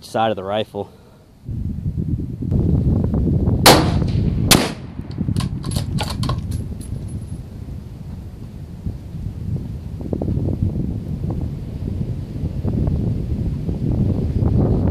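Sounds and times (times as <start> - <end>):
wind buffeting microphone: 1.4 - 14.9
gunshots with echo: 3.7 - 4.9.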